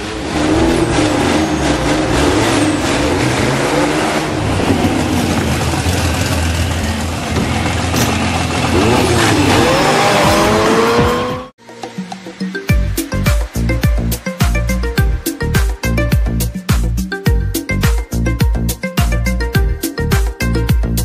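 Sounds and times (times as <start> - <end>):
car engines revving: 0.0 - 11.6.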